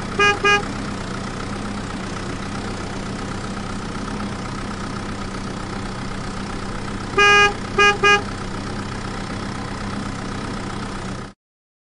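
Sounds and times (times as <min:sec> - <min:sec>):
engine drone: 0:00.0 - 0:11.4
vehicle horn beeping: 0:00.1 - 0:00.8, 0:07.1 - 0:08.4.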